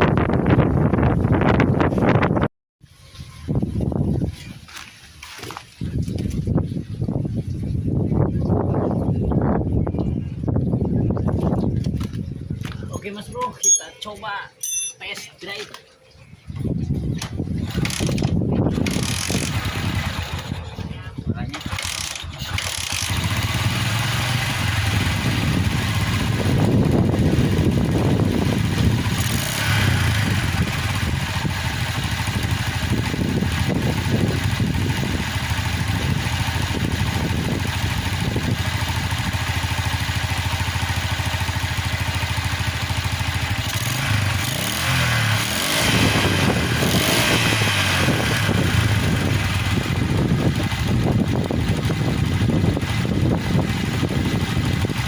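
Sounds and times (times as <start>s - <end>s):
small motorcycle engine revving: 17.5s - 55.0s.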